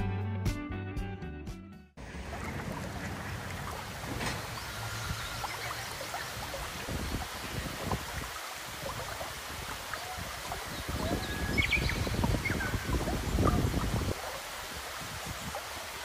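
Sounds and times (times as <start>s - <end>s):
running river water: 2.0s - 16.0s.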